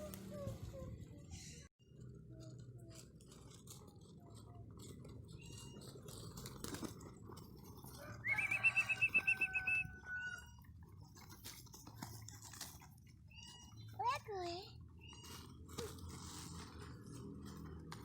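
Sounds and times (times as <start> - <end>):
bird chirping trill: 8.2 - 9.9.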